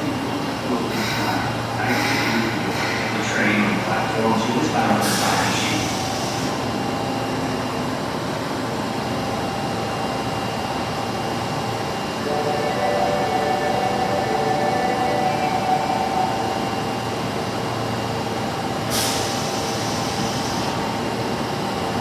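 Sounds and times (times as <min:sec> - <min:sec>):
subway train hiss: 0:00.0 - 0:22.0
subway train running noise: 0:00.0 - 0:22.0
steady multi-tone hum: 0:10.7 - 0:18.7.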